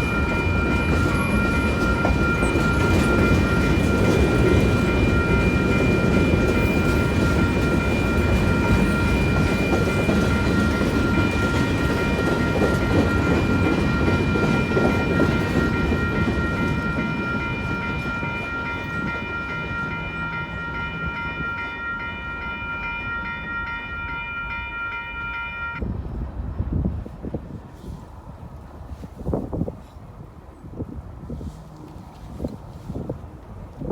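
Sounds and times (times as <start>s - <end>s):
crossing bells ringing: 0.0s - 25.8s
train rumbling past: 0.0s - 32.1s.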